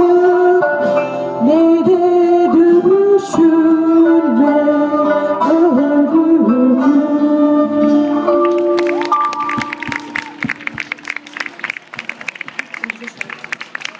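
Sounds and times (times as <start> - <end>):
person singing folk melody: 0.0 - 8.4
acoustic accompaniment: 0.0 - 12.3.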